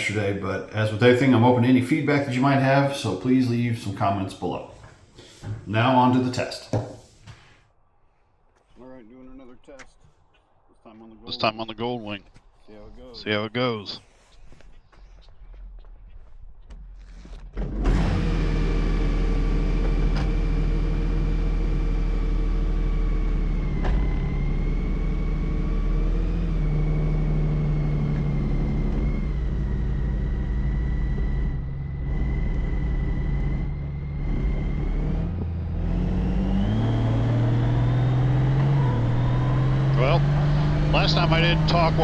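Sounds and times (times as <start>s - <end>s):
motorcycle engine running: 18.8s - 42.0s.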